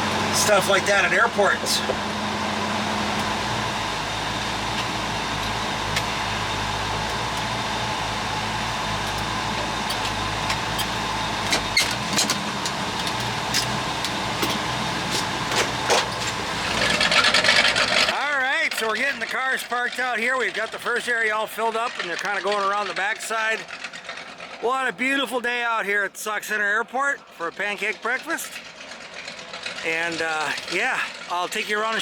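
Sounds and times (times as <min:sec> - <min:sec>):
road noise inside car: 0:00.0 - 0:18.2
car engine at low speed: 0:00.0 - 0:25.7, 0:26.4 - 0:32.0.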